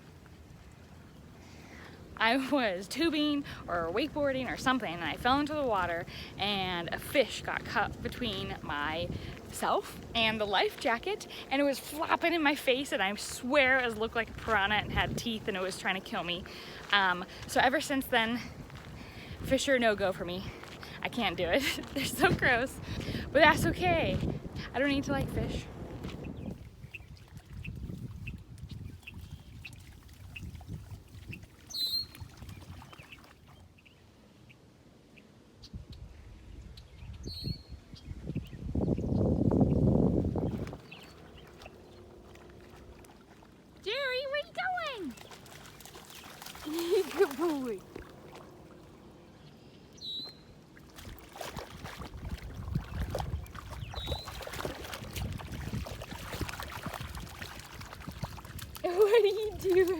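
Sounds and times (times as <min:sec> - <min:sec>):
low outdoor rumble: 0:00.0 - 0:26.7
water sloshing and splashing: 0:00.0 - 0:33.8, 0:40.0 - 0:59.9
bird call: 0:31.3 - 0:32.2, 0:50.0 - 0:50.5.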